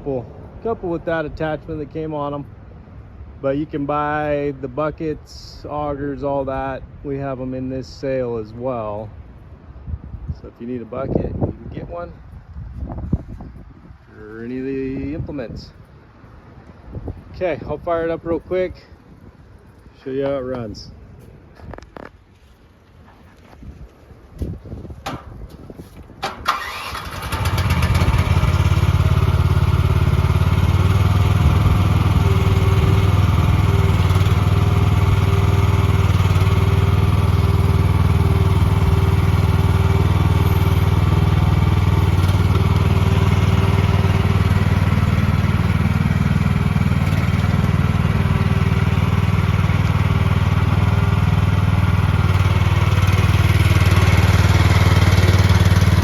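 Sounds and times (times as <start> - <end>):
small gas engine starting and running: 26.2 - 56.0.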